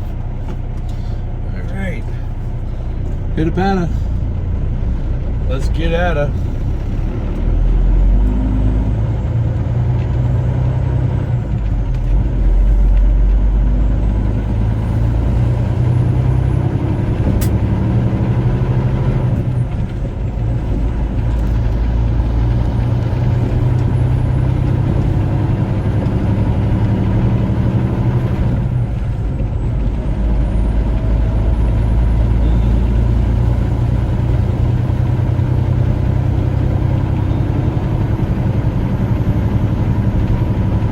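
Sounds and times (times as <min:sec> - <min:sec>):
diesel truck engine pulling away: 0:00.0 - 0:40.9.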